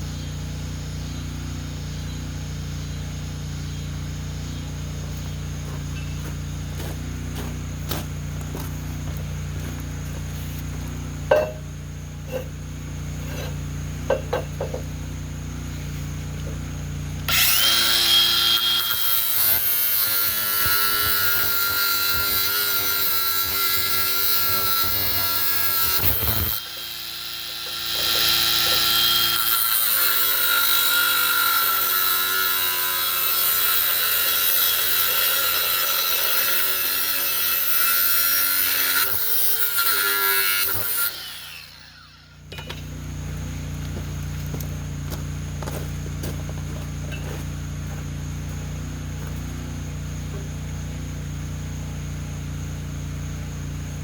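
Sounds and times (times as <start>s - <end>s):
power tool cutting steel pipe: 12.2s - 43.2s.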